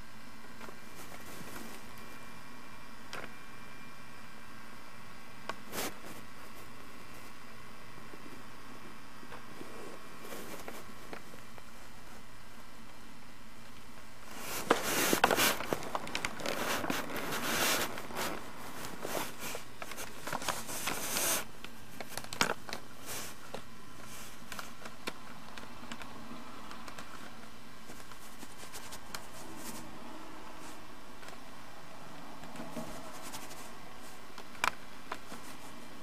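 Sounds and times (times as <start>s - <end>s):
steady hiss: 0.0s - 25.2s
rustling and crackling: 0.5s - 2.2s, 9.3s - 13.0s, 13.6s - 31.4s, 32.4s - 36.0s.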